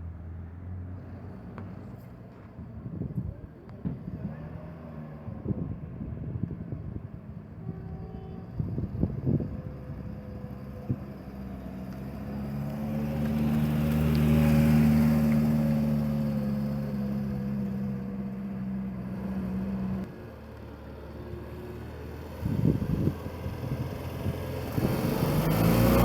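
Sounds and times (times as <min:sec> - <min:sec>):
car engine driving past: 0:08.4 - 0:26.0.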